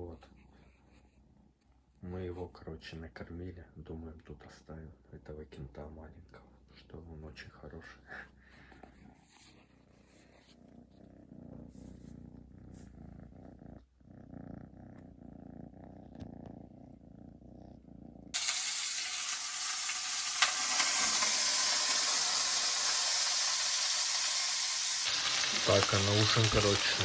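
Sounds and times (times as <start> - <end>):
kitten purring: 0.0 - 24.6, 25.2 - 27.0
food sizzling in a pan: 18.4 - 27.0.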